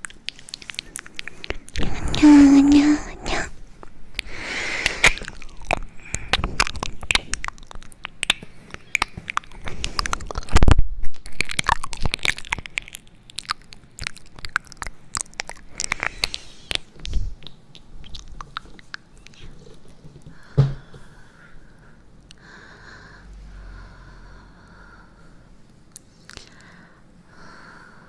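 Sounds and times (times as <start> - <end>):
crunching and crackling: 0.0 - 1.8, 5.0 - 20.0.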